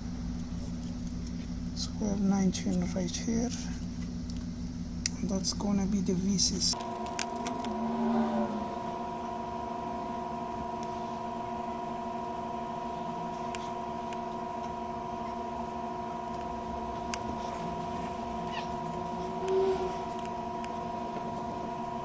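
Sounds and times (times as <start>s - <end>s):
electrical hum: 0.0s - 22.0s
clicks: 13.2s - 21.7s.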